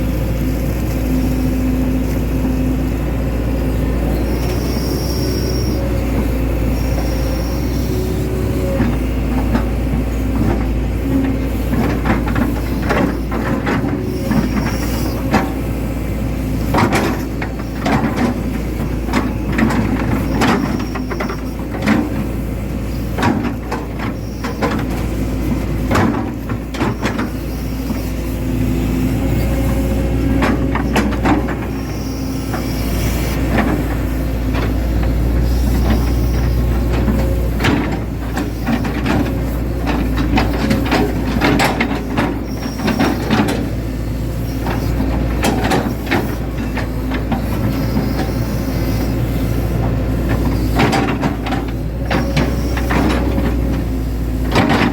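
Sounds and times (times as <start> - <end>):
excavator diesel engine: 0.0 - 54.9.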